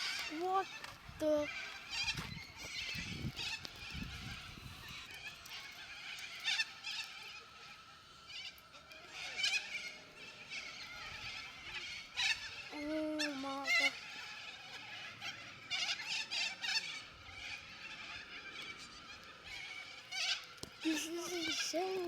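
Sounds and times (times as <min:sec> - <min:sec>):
flock of birds chattering: 0:00.0 - 0:22.0.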